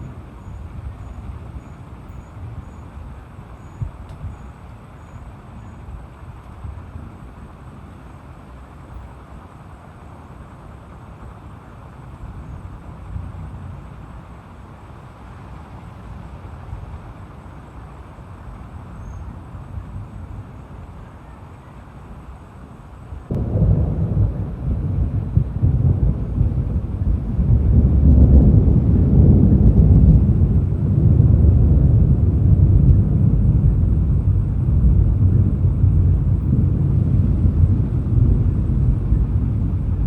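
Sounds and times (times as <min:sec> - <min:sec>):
wind and rain rushing: 0:00.0 - 0:40.0
low rumble: 0:23.2 - 0:40.0
thunder rumble: 0:23.2 - 0:40.0.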